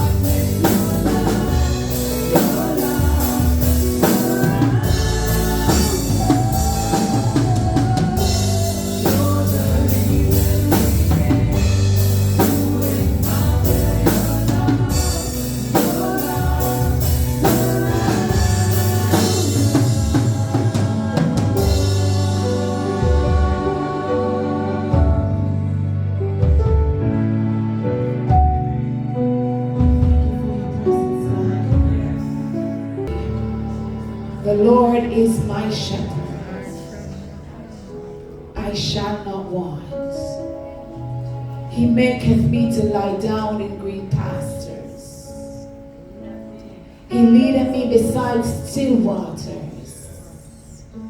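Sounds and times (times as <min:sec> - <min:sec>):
singing: 0:00.0 - 0:25.7
band playing: 0:00.0 - 0:46.1.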